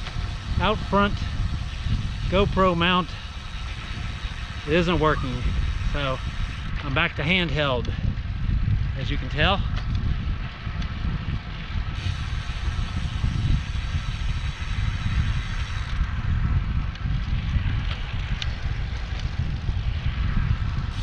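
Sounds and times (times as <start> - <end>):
road noise: 0.0 - 21.0
wind on microphone: 0.0 - 21.0.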